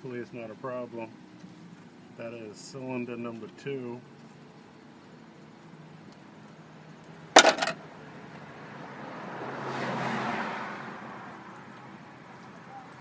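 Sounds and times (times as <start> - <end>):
metallic clatter of clicks: 7.4 - 7.8.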